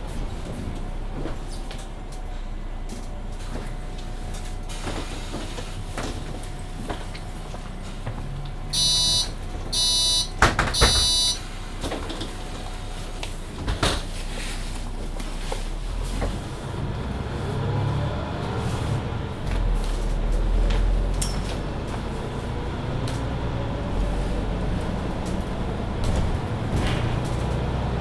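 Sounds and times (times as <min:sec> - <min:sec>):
bus low hum: 0:00.0 - 0:28.0
bus doors closing with hiss: 0:04.6 - 0:14.9
electronic warning beeps: 0:08.7 - 0:11.4.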